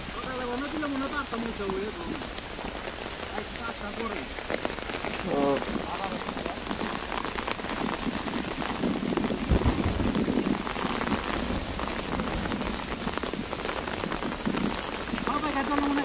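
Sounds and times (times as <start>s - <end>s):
raindrops ticking on fabric umbrella: 0.0s - 16.0s
steady rain: 0.0s - 16.0s
low thud: 9.4s - 10.6s.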